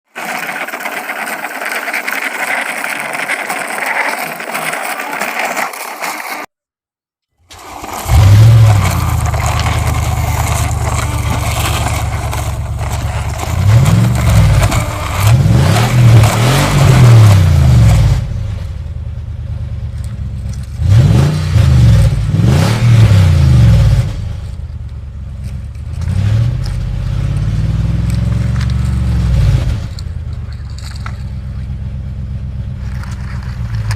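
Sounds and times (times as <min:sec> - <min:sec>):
rattling scraping noise: 0:00.0 - 0:06.5, 0:07.5 - 0:18.4, 0:19.9 - 0:31.9, 0:32.8 - 0:33.9
engine revving: 0:07.5 - 0:19.3, 0:19.9 - 0:24.6, 0:25.5 - 0:33.9.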